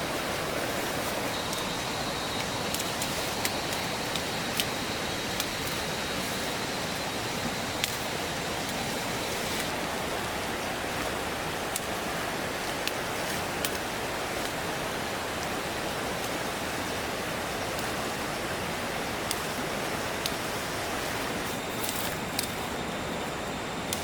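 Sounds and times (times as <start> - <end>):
faint sharp clicks: 21.8 - 22.6.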